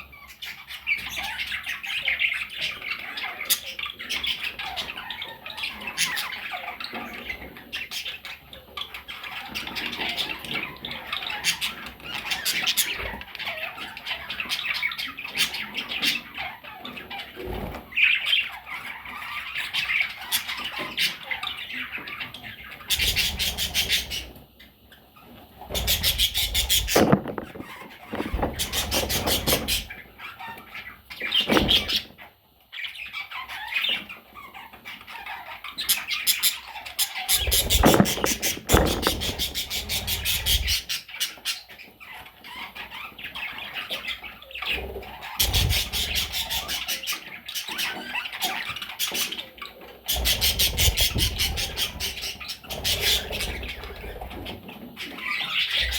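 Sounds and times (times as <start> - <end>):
parrots squawking and chirping: 0.1 - 55.9
rattling wing fluttering: 25.8 - 29.9, 37.3 - 40.8.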